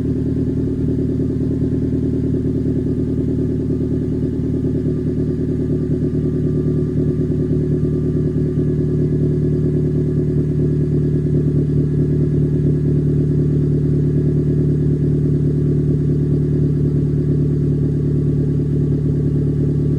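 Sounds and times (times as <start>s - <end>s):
car engine idling: 0.0s - 19.9s.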